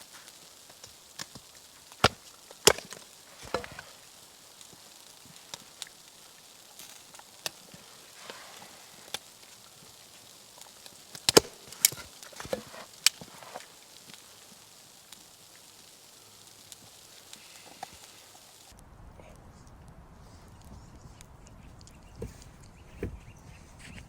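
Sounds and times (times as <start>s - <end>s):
wood cracking: 0.0s - 18.7s.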